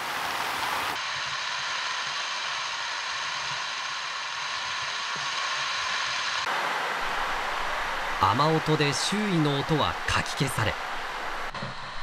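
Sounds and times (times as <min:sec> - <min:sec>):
heavy rain on pavement: 0:00.0 - 0:01.0, 0:06.4 - 0:11.6.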